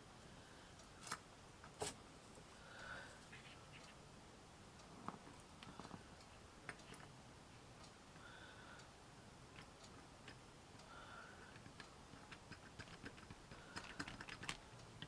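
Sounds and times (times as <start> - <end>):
small clicks and ticks: 4.8 - 15.0.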